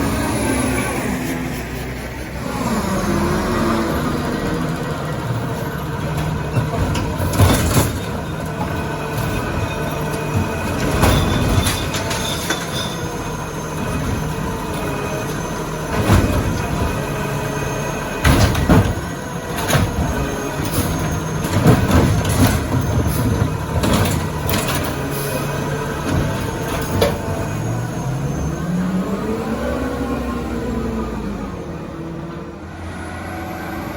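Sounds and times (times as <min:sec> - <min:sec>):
diesel engine running: 0:00.0 - 0:33.9
metal clanks and bangs: 0:05.5 - 0:28.0.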